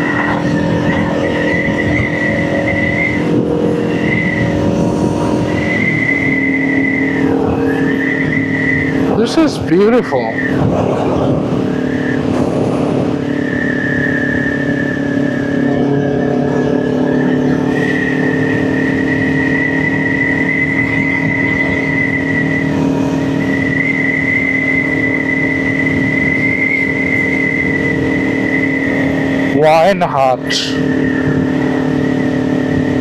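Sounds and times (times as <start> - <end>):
steady high whistle: 0.0 - 10.6, 11.6 - 33.0
wind rush: 0.0 - 24.0
motorcycle engine cruising: 0.0 - 33.0.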